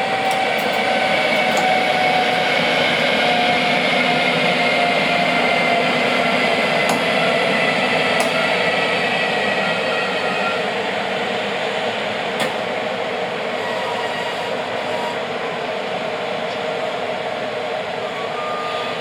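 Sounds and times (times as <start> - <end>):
train wheels squealing: 0.0 - 11.0, 13.5 - 15.8, 17.8 - 19.0
train rolling past: 0.0 - 19.0.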